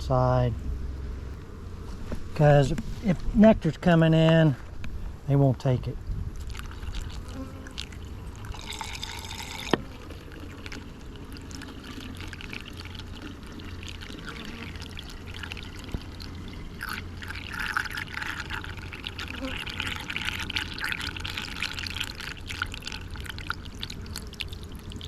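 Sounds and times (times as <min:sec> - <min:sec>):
syrup trickling from a jug: 0:06.4 - 0:25.0.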